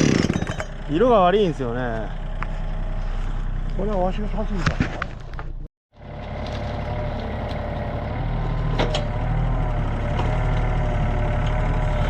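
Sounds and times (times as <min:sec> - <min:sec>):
engine idling: 0:00.0 - 0:04.6.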